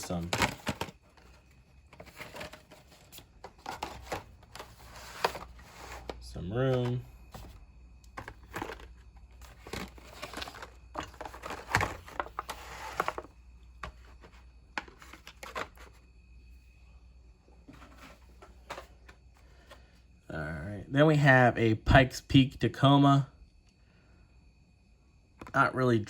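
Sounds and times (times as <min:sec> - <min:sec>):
plastic packs rustling and clacking: 0:00.0 - 0:16.0, 0:17.7 - 0:19.2.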